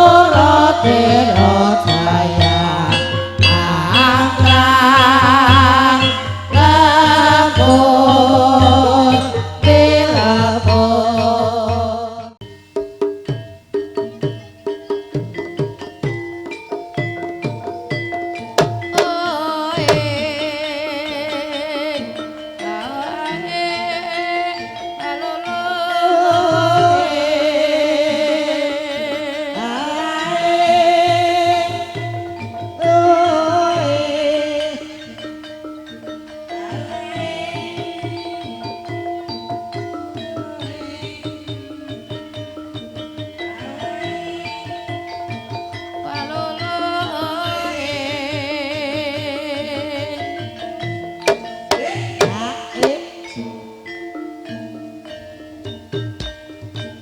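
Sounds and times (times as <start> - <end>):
person singing wavering notes: 0.0 - 12.5, 16.7 - 56.3
steady drum beat: 0.0 - 20.4, 51.0 - 53.3
sustained pitched instruments: 0.0 - 57.0.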